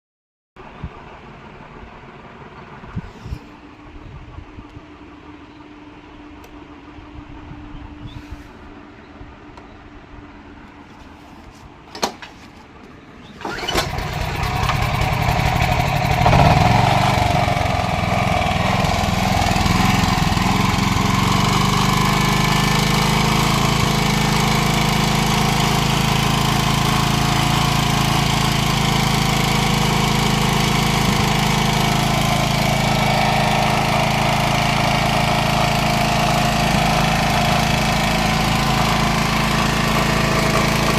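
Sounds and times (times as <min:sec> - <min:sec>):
petrol generator engine running: 0:13.4 - 0:40.9.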